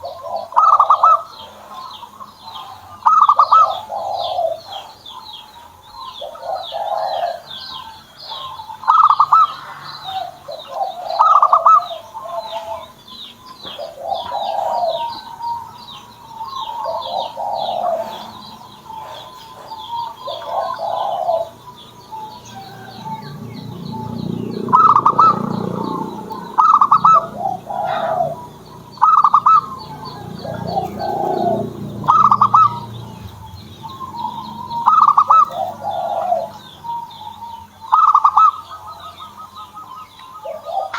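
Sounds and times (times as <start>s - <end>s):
doves cooing: 0.0s - 40.9s
small bird chirping: 0.0s - 40.9s
low rushing noise: 21.5s - 36.9s.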